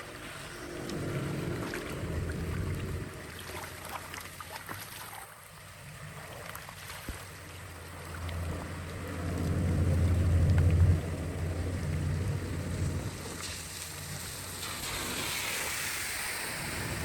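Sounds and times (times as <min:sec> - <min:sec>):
wind buffeting microphone: 0:00.0 - 0:03.8, 0:08.2 - 0:17.0
low rumble: 0:00.0 - 0:04.1, 0:07.5 - 0:15.1
running water: 0:00.0 - 0:17.0
small clicks and splashes: 0:00.8 - 0:12.2.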